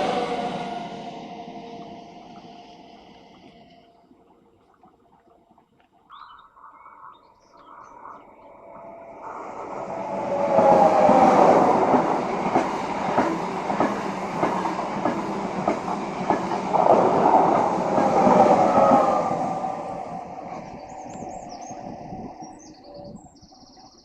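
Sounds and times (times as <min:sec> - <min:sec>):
train wheels clicking over rail joints: 0:10.4 - 0:19.1.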